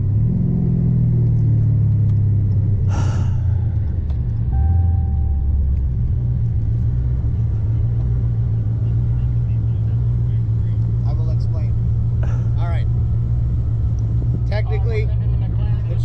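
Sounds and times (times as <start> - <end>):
car engine rumbling: 0.0 - 16.0
short beep: 4.5 - 5.7.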